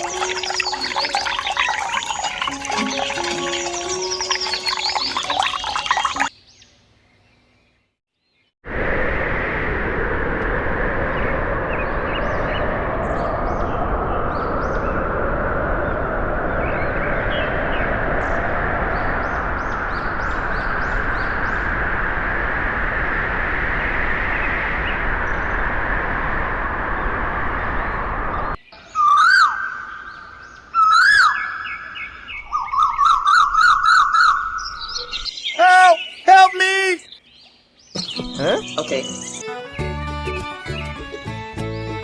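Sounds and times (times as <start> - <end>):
sweeping whistle-like chirps: 0.0 - 6.3, 11.1 - 36.2, 38.0 - 39.6.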